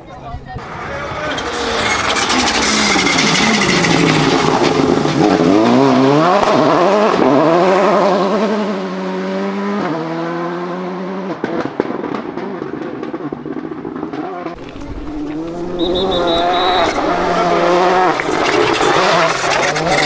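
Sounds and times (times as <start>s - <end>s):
rally car engine revving hard: 0.6s - 20.0s
sharp cracks: 14.6s - 20.0s.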